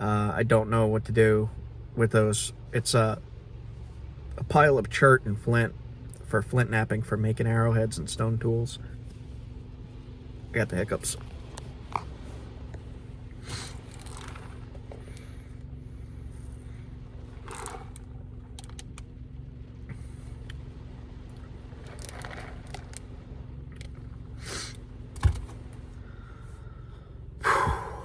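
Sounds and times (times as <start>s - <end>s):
steady low hum: 0.0s - 28.0s
man breathing: 13.3s - 14.2s, 14.9s - 17.7s, 24.4s - 24.9s, 25.9s - 28.0s.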